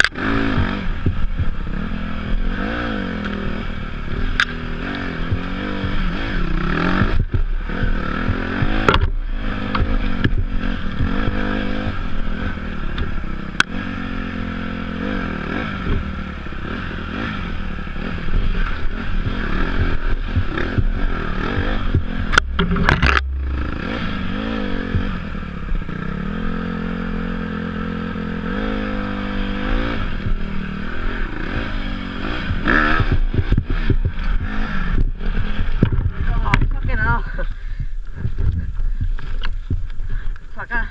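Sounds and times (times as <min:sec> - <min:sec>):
dirt bike engine revving: 0:00.0 - 0:40.9
sharp knocks: 0:07.0 - 0:11.4, 0:21.6 - 0:25.2
bike clattering and scraping: 0:17.8 - 0:25.3, 0:32.2 - 0:40.9.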